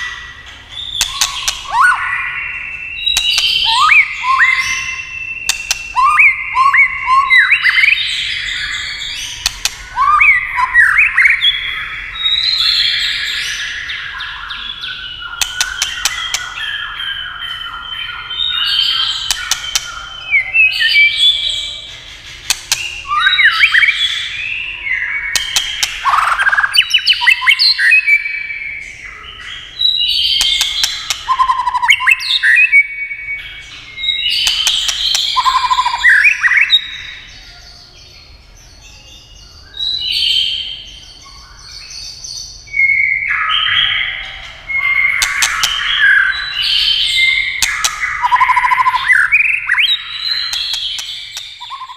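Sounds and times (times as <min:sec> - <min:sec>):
bird singing whistled phrases: 0:00.0 - 0:21.9, 0:22.7 - 0:38.1, 0:38.8 - 0:51.9
bird clicking notes: 0:01.0 - 0:01.8, 0:03.1 - 0:03.7, 0:05.5 - 0:06.1, 0:09.4 - 0:09.9, 0:15.4 - 0:16.6, 0:19.2 - 0:20.0, 0:22.4 - 0:23.0, 0:25.4 - 0:26.5, 0:30.4 - 0:32.1, 0:34.4 - 0:35.9, 0:45.2 - 0:45.9, 0:47.6 - 0:49.1, 0:50.5 - 0:51.9.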